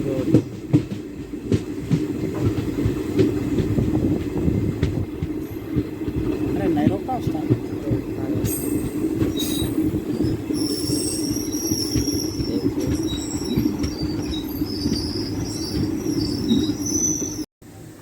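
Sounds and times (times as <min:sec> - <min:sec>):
train rumbling: 0:00.0 - 0:18.0
metallic wheel squeals: 0:08.5 - 0:17.5.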